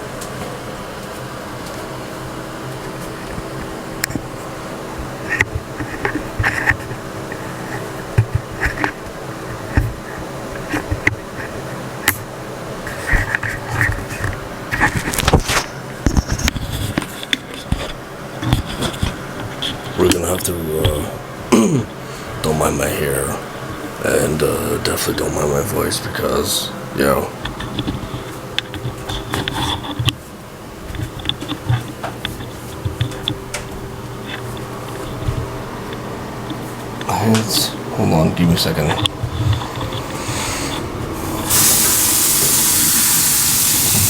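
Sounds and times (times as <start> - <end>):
electric fan buzzing hum: 0.0 - 44.0
handling knocks and clicks: 30.9 - 37.6.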